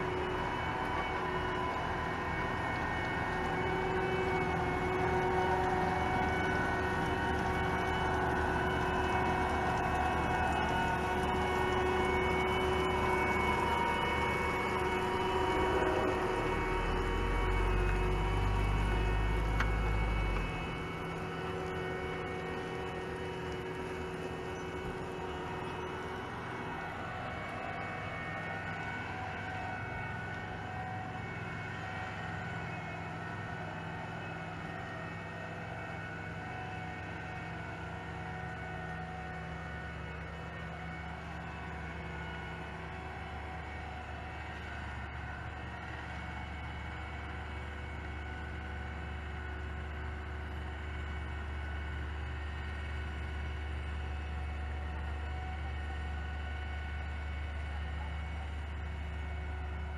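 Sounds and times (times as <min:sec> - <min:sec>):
whining tones: 0:00.0 - 0:59.8
diesel engine and hydraulic drone: 0:00.0 - 0:59.9.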